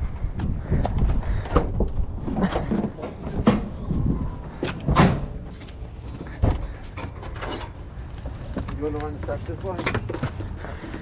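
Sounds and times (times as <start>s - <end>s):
low rumble: 0.0s - 6.8s
clunks and knocks: 0.4s - 8.8s.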